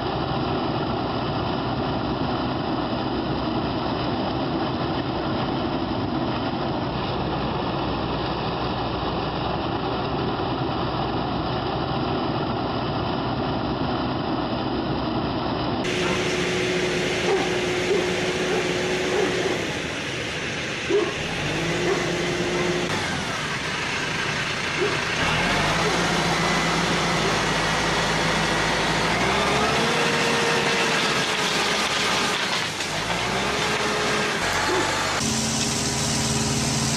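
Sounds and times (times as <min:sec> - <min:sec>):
heavy machinery engine running: 0:00.0 - 0:36.9
machine whining tone: 0:15.9 - 0:30.8.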